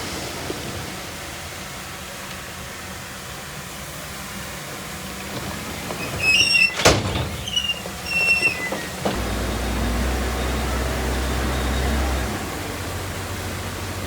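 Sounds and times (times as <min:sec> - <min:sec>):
low engine rumble: 0:00.0 - 0:14.0
high metallic squeals: 0:05.4 - 0:12.1.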